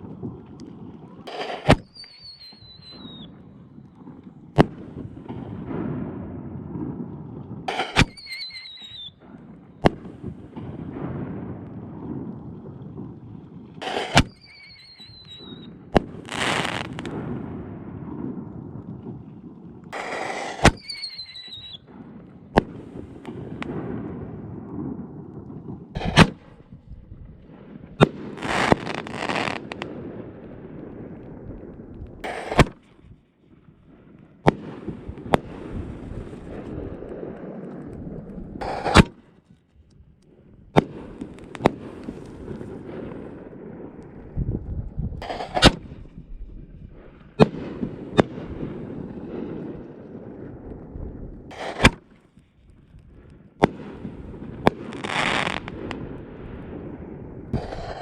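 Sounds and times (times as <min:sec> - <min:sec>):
crackling hiss: 0:00.0 - 0:06.1, 0:07.7 - 0:33.2, 0:34.2 - 0:58.0
short falling whistle: 0:01.9 - 0:03.3, 0:08.1 - 0:09.2, 0:14.3 - 0:15.7, 0:20.8 - 0:21.8
firework shells banging: 0:57.6 - 0:58.0.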